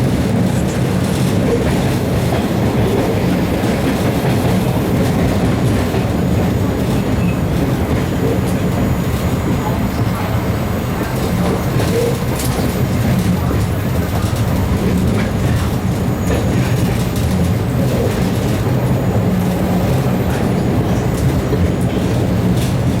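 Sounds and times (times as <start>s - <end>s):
subway car rumble: 0.0s - 23.0s.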